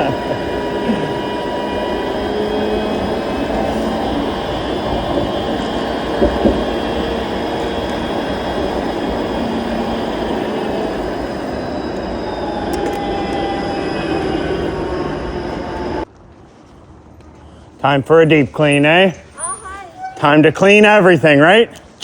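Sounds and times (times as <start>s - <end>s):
wheels squealing on track: 0.0s - 16.0s
streetcar rumbling on rails: 0.0s - 16.1s.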